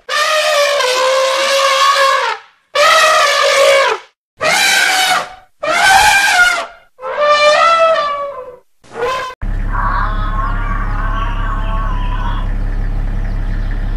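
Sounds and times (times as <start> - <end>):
elephant trumpeting: 0.0 - 12.5.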